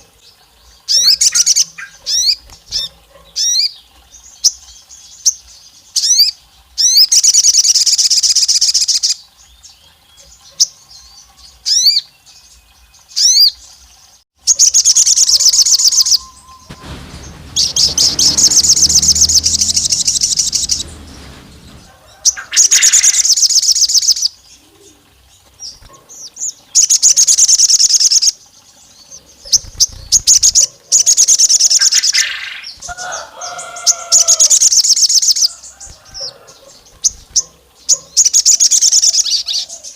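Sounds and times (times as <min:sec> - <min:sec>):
bird rattling calls: 0:14.6 - 0:24.3, 0:29.4 - 0:39.3.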